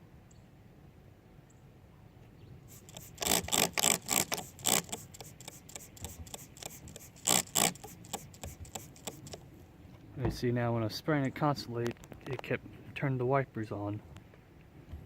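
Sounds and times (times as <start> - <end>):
trigger spray bottle spraying: 2.7 - 9.4.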